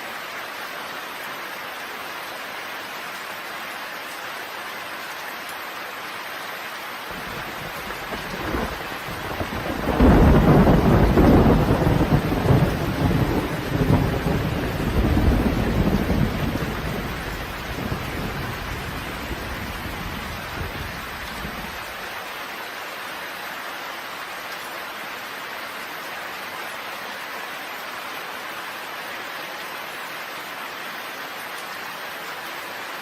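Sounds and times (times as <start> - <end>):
steady rain: 0.0 - 33.0
thunder rumbling: 7.1 - 21.8.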